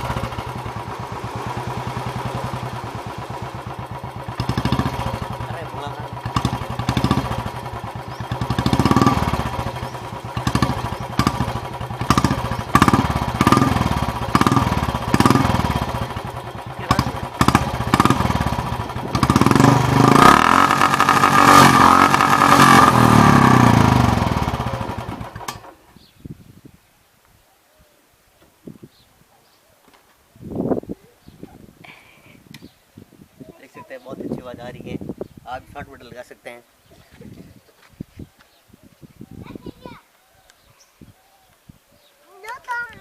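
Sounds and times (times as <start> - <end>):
motorcycle engine revving: 0.0 - 25.8.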